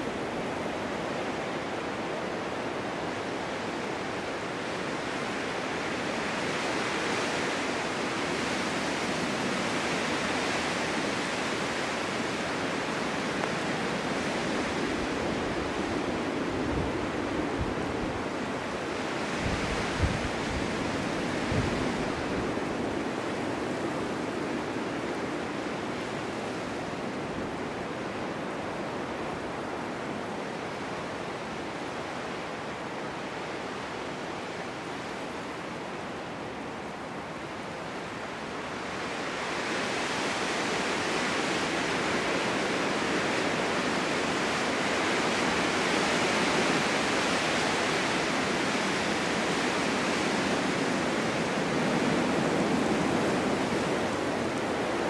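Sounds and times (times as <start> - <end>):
gusting snowstorm wind: 0.0 - 55.0.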